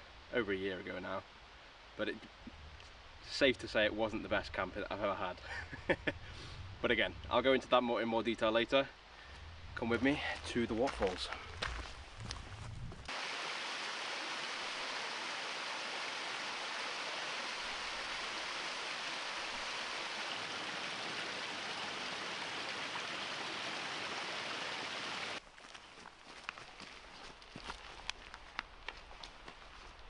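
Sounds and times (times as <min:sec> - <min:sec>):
waterfall roar: 0:13.1 - 0:25.4.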